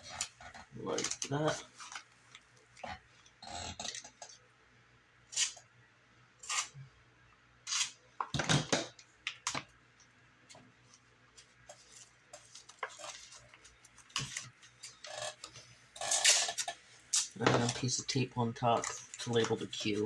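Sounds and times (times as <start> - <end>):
masking tape pulled and torn: 5.3 - 5.6.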